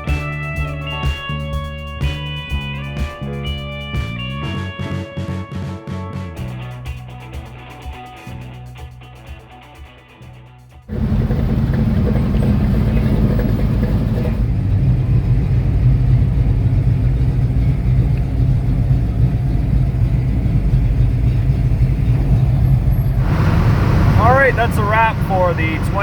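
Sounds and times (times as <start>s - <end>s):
car engine drone: 10.9s - 26.0s
road noise: 10.9s - 26.0s.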